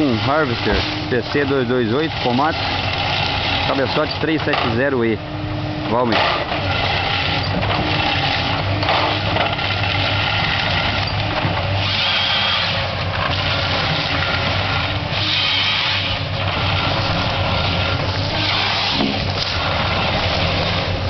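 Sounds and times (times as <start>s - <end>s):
diesel engine hum: 0.0s - 21.0s
harvester head whine and hiss: 11.8s - 21.0s.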